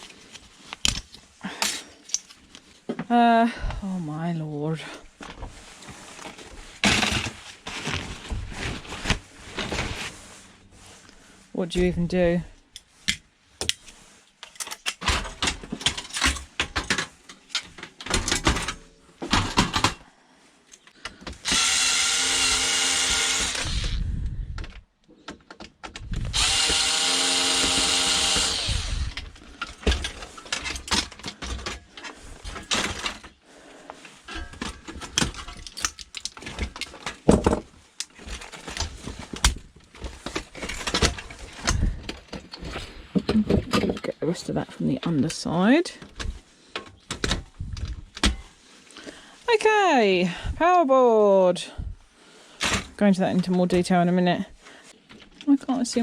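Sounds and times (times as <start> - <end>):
plastic parts knocking and clattering: 0.0 - 3.2, 6.2 - 10.1, 14.4 - 20.0, 23.0 - 33.4, 34.2 - 44.3, 46.0 - 48.6, 52.6 - 53.9
cordless drill running: 21.4 - 24.1, 26.3 - 29.3.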